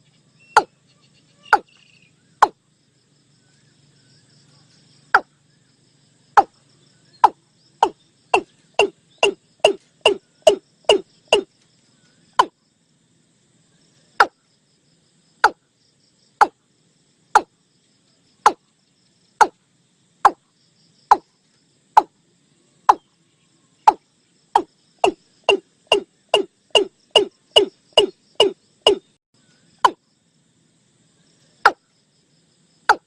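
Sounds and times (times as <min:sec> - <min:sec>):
bird calling sharp notes: 0:07.2 - 0:11.5, 0:24.6 - 0:29.1.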